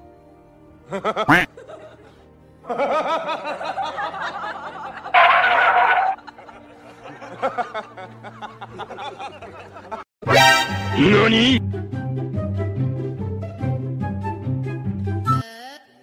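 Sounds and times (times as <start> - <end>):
background music: 0.0 - 16.0
people laughing and snickering: 0.9 - 10.0.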